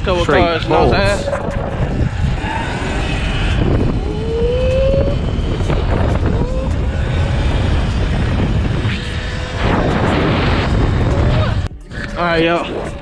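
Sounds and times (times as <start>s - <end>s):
wind rumble on microphone: 0.0s - 13.0s
electric motor whine rising: 1.3s - 11.7s.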